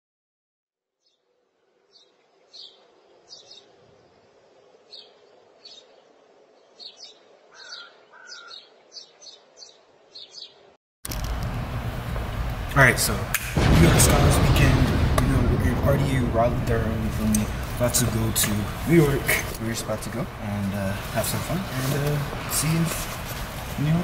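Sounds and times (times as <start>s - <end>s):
small birds chirping: 1.0s - 10.8s
parking garage noise: 11.0s - 24.0s.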